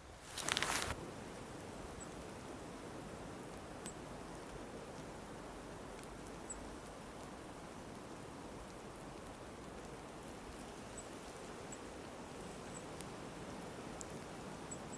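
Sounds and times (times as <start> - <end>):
soft hiss: 0.0 - 14.9
tiny ticks: 3.5 - 5.2, 5.9 - 14.9.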